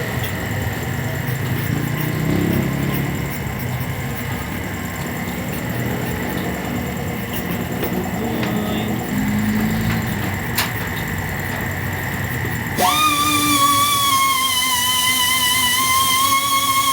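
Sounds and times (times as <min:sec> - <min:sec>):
vehicle engines running: 0:00.0 - 0:12.8.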